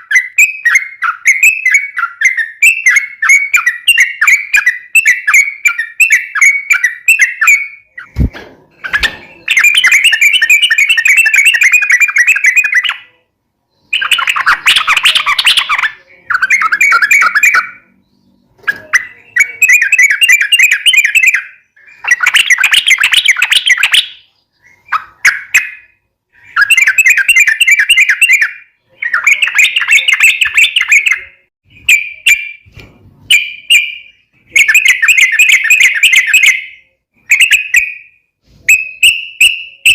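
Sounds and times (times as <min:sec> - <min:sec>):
bird chattering song: 0:00.0 - 0:32.7, 0:33.3 - 0:39.9.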